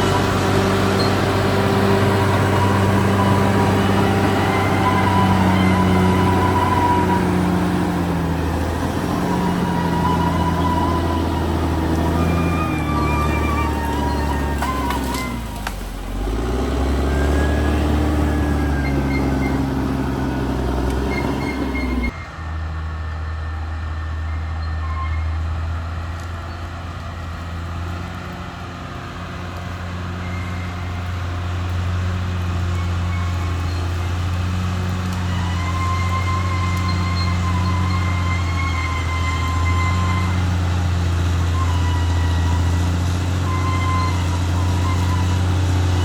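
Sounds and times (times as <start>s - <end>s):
thin high squeal: 0.0s - 15.6s, 17.0s - 22.4s, 35.2s - 46.0s
bulldozer diesel engine running: 0.0s - 46.0s.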